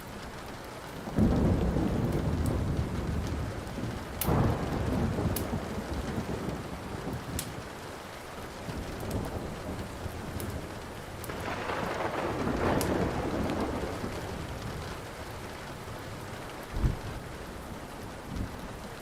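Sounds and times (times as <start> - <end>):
steady rain: 0.0 - 19.0
wood fire crackling: 0.0 - 19.0
thunder rolling: 1.2 - 7.7, 8.6 - 17.3.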